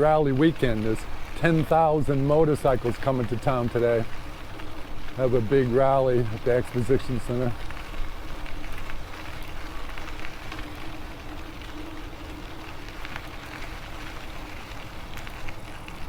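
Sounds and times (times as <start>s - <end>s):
bike tyre rumble: 0.0s - 16.0s
faint steady hum: 0.0s - 16.0s.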